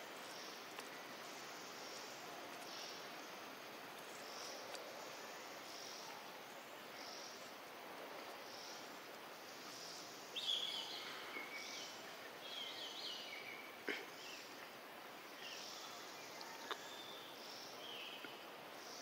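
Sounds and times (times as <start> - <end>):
steady background hiss: 0.0 - 19.0
birds chirping: 8.2 - 19.0.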